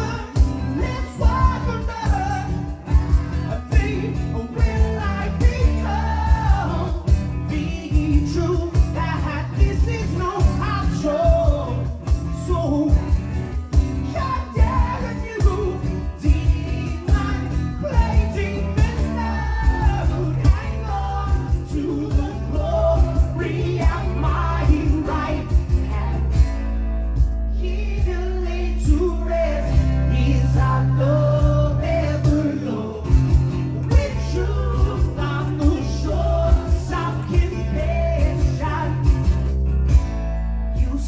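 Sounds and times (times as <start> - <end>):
person singing lead vocal: 0.0 - 13.2, 14.0 - 26.8, 27.5 - 39.2, 40.8 - 41.0
low bass notes: 0.0 - 41.0
strummed acoustic guitars: 0.0 - 41.0.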